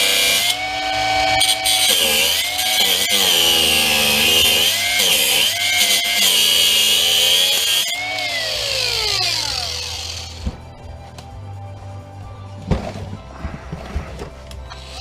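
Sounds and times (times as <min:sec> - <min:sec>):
power cutting tool cutting: 0:00.0 - 0:10.4.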